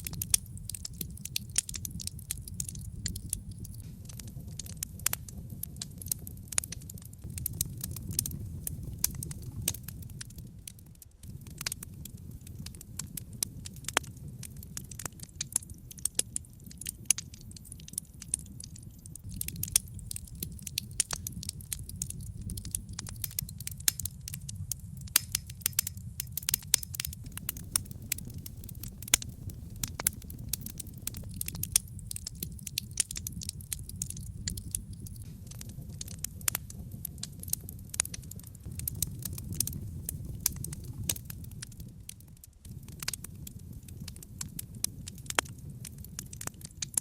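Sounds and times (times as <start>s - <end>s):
logs crackling and popping: 0.0s - 47.0s
steady rush of flame: 0.0s - 47.0s.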